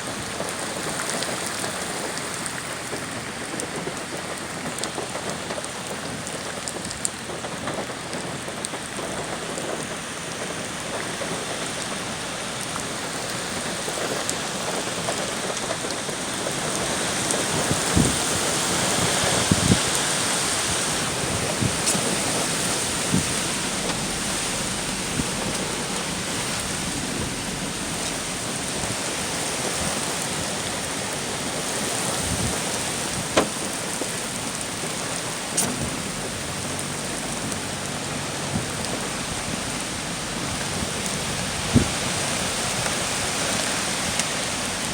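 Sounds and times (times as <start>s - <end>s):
heavy rain: 0.0s - 44.9s
strong wind: 9.0s - 44.9s.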